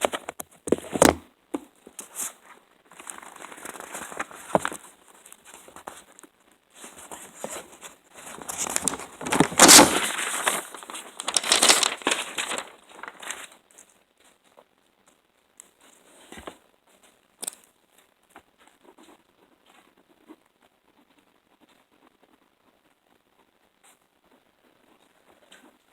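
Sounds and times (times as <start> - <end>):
crinkling rustling handling: 2.9 - 6.2, 6.8 - 13.9.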